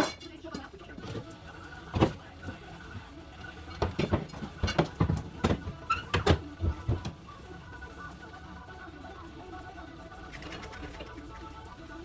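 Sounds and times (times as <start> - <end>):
knocks and clunks: 3.7 - 7.2.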